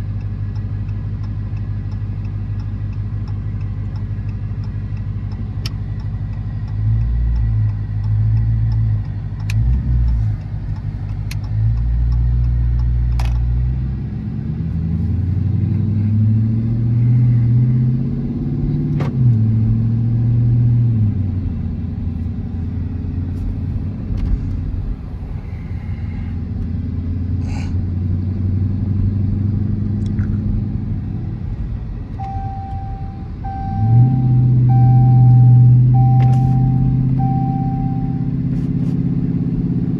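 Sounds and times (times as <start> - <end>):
car engine droning: 0.0 - 39.9
faint repeating beep: 32.2 - 38.4.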